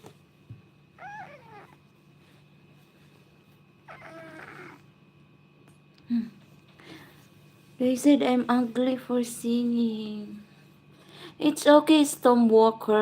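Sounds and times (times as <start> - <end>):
cat meowing: 1.0 - 1.8, 3.9 - 4.9.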